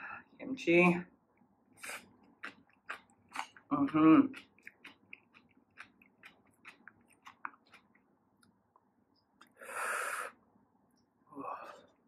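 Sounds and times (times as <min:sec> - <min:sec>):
person chewing: 0:01.8 - 0:08.6.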